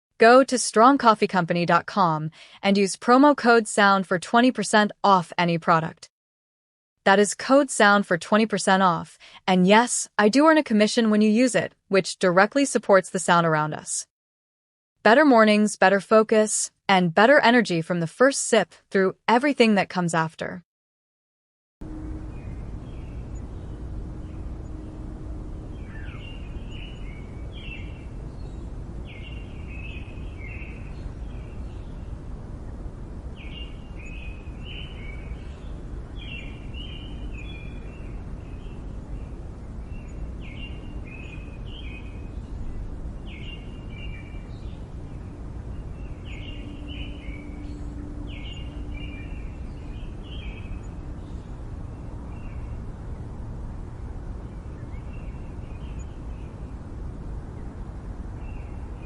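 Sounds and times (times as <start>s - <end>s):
songbird singing: 21.8s - 53.5s, 54.2s - 59.0s
low city rumble: 21.8s - 59.0s.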